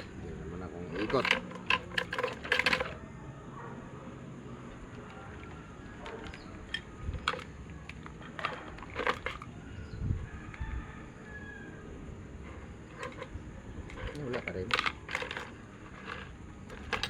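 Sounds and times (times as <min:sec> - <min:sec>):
clicks and knocks of handled parts: 0:00.9 - 0:03.0, 0:04.7 - 0:09.5, 0:12.8 - 0:17.0.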